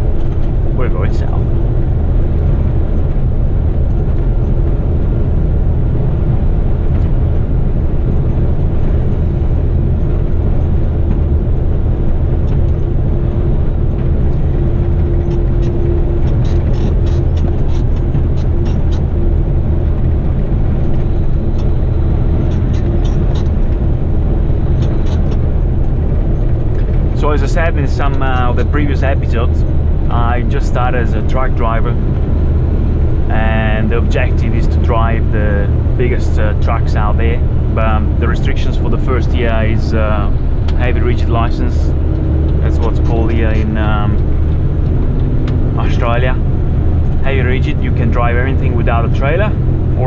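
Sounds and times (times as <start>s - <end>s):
diesel truck engine drone: 0.0s - 50.0s
road noise: 0.0s - 50.0s.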